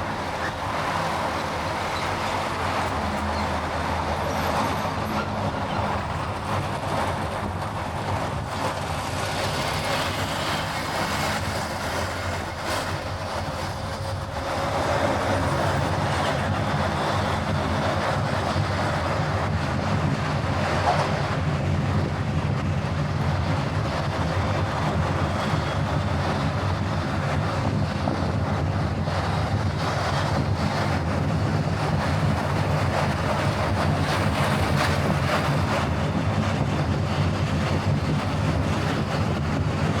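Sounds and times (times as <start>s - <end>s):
tyre and road noise: 0.0s - 40.0s.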